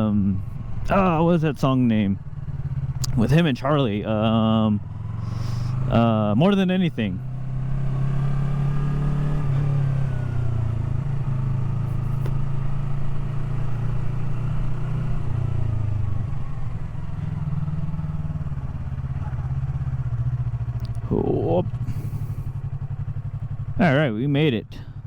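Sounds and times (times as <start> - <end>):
motorcycle engine at low revs: 0.0 - 25.0.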